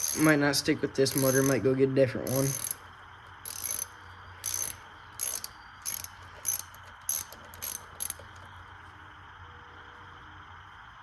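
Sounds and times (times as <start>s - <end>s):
ratchet wrench clicking: 0.0s - 0.4s, 1.0s - 1.6s, 2.2s - 2.8s, 3.4s - 8.5s.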